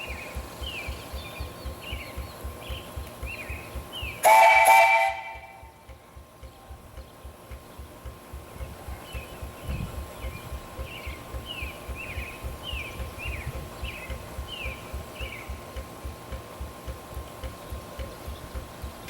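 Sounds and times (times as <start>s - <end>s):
bird singing falling notes: 0.0s - 4.3s, 6.4s - 16.2s
steam traction engine chuffing: 0.0s - 19.0s.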